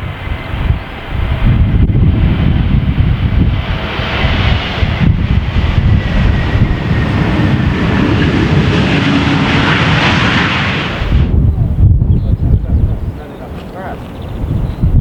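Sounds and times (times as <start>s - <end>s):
jet engine hiss: 0.0s - 11.4s
wind buffeting microphone: 0.0s - 15.0s.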